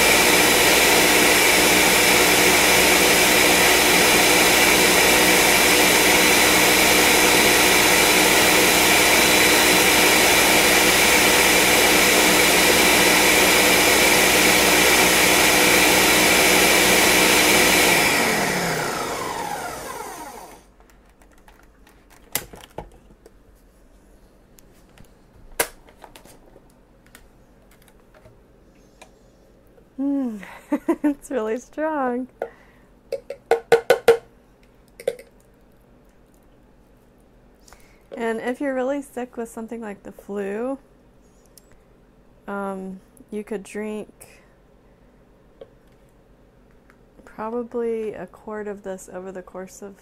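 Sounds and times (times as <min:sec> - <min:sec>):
blender running: 0:00.0 - 0:20.7.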